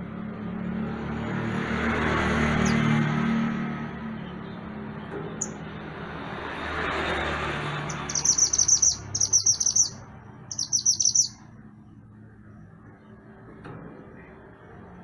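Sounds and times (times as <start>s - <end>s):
songbird chirping: 7.8s - 11.5s.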